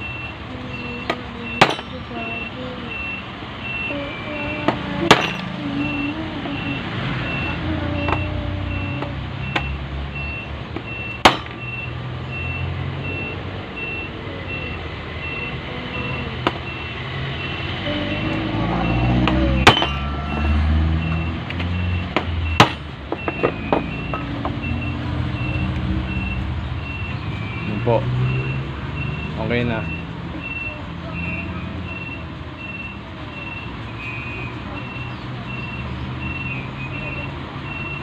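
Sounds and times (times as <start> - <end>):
low engine rumble: 0.0 - 27.9
hammer striking metal: 1.6 - 2.1, 4.7 - 5.6, 11.2 - 11.7, 19.2 - 20.1, 22.2 - 24.3
repeating high beep: 5.1 - 22.6.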